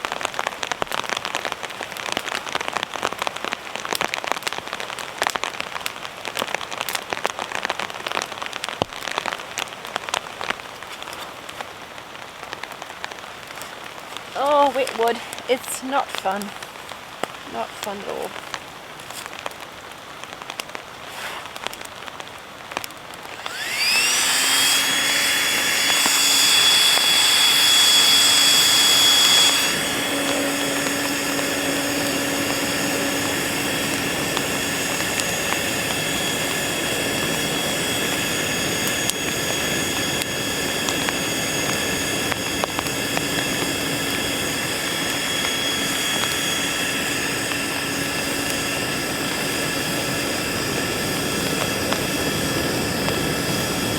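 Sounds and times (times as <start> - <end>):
electric fan motor whining: 13.5 - 18.4, 23.2 - 53.9.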